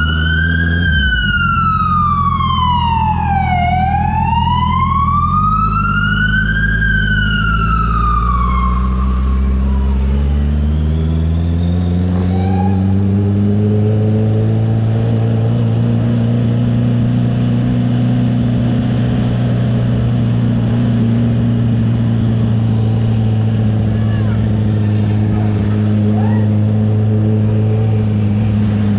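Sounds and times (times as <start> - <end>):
siren wailing: 0.0 - 15.8, 21.6 - 28.6
motorcycle engine running: 9.3 - 28.9.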